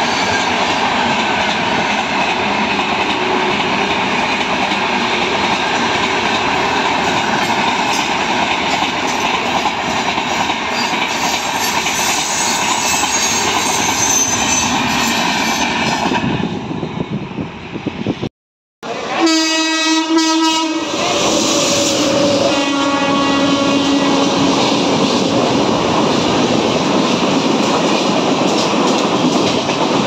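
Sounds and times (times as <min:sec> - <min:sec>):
train coaches passing at speed: 0:00.0 - 0:30.0
locomotive horn blast: 0:18.8 - 0:25.0.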